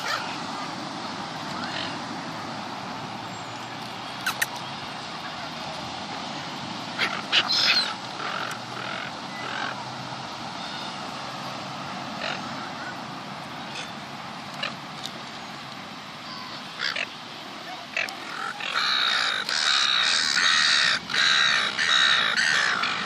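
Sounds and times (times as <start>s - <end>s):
seagulls calling: 0.0s - 2.2s, 6.4s - 9.9s, 12.1s - 15.6s, 16.2s - 23.0s.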